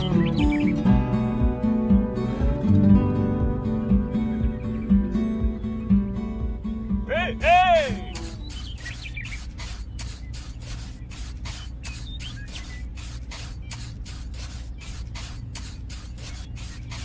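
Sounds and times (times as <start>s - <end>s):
small motor humming with hissing chuff: 8.0s - 17.0s.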